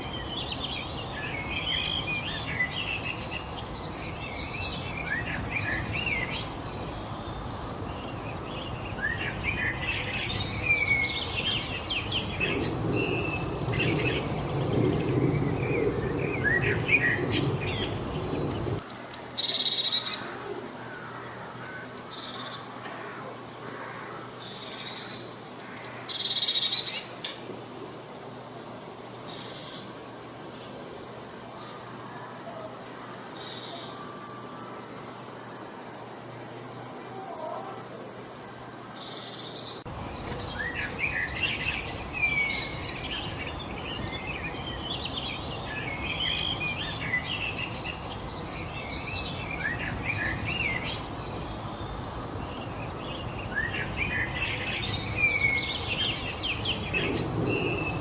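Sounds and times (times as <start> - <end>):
songbirds chirping and singing: 0.0 - 58.0.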